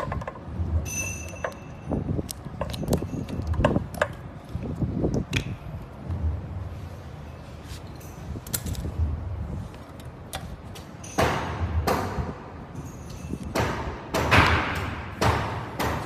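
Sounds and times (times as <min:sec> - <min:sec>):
tools and parts clicking: 0:00.0 - 0:04.3, 0:07.9 - 0:09.0
rustling and scraping: 0:06.6 - 0:11.0.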